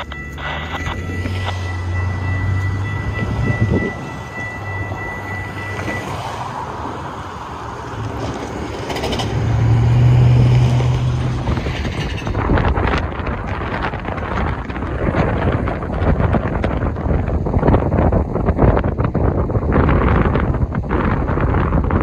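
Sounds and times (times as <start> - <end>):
thin high steady tone: 0.0 - 6.8
diesel train engine drone: 0.0 - 22.0.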